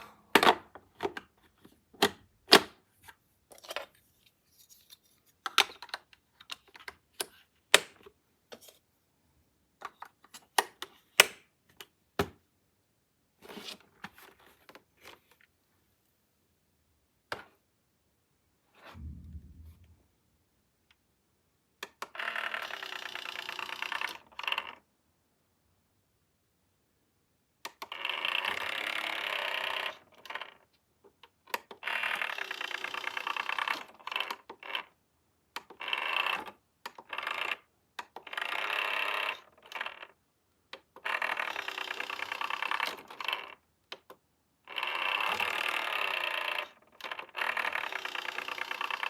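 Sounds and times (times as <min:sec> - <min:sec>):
low rumble: 0:19.0 - 0:20.4.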